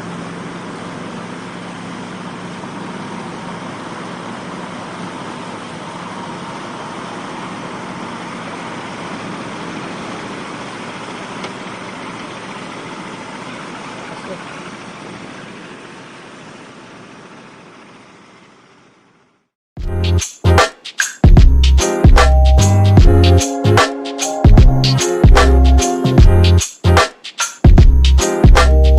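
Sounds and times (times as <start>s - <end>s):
vehicle engine running: 0.0s - 20.6s, 21.3s - 27.0s, 27.7s - 28.9s.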